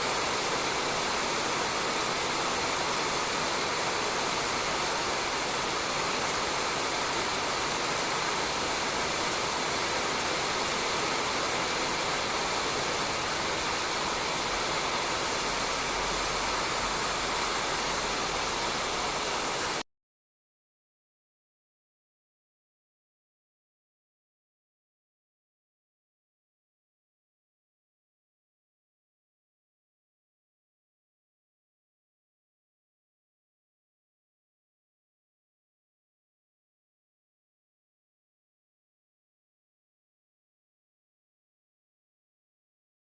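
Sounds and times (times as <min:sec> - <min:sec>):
rain on a roof: 0:00.0 - 0:19.8.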